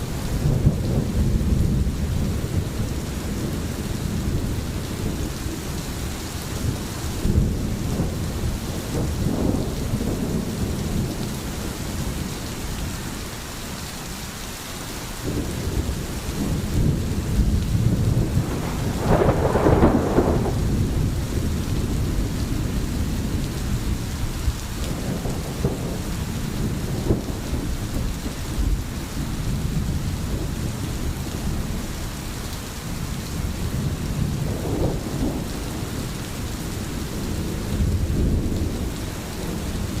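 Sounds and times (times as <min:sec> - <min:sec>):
rain falling: 0:00.0 - 0:40.0
rolling thunder: 0:00.3 - 0:13.2, 0:15.2 - 0:32.2, 0:32.8 - 0:40.0.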